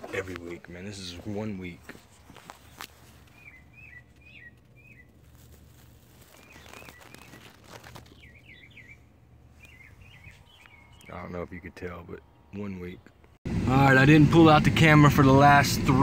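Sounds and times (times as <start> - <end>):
bird chirping: 1.0 - 13.4.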